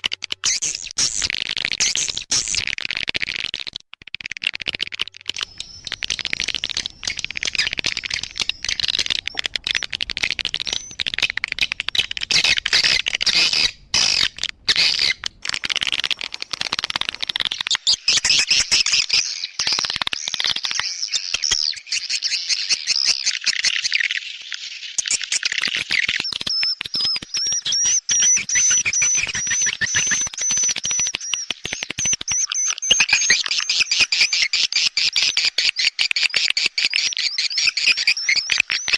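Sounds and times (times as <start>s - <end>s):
birds chirping and twittering: 5.3s - 25.6s, 32.4s - 38.9s.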